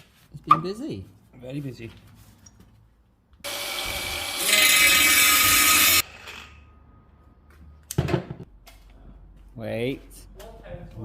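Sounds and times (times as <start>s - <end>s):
power tool running: 3.4s - 6.6s.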